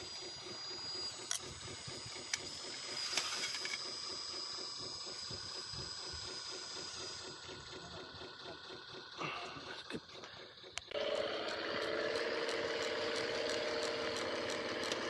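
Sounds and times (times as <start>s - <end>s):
high electric whine: 0.0s - 8.1s
rapid low pulsing: 0.0s - 15.0s.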